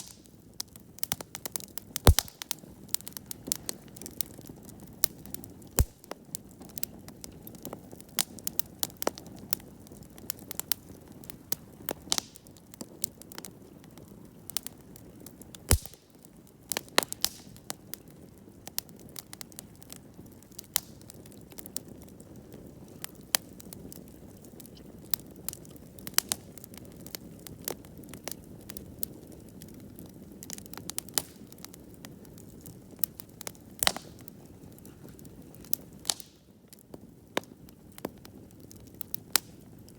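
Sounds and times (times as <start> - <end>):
campfire crackling and popping: 0.0 - 39.9
hiss of flames: 2.0 - 4.6, 5.7 - 6.2, 15.7 - 16.1.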